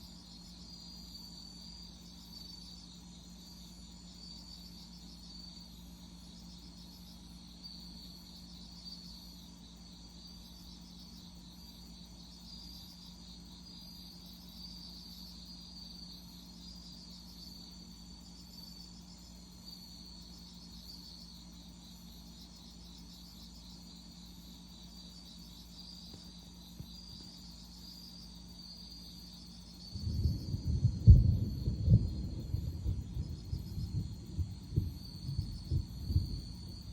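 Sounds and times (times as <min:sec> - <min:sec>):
faint low hum: 0:00.0 - 0:36.9
insects chirping in trills: 0:00.0 - 0:36.9.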